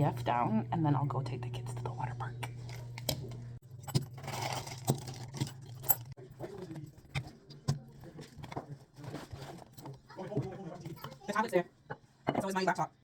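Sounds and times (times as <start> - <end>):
low hum: 0.0 - 6.2
small hard objects clinking: 3.7 - 6.2.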